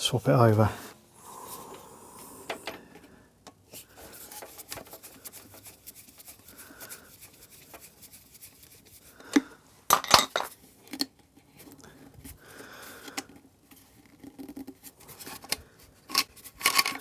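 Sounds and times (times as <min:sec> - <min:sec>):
hands clicking and rubbing on parts: 0:01.5 - 0:09.5, 0:13.0 - 0:17.0.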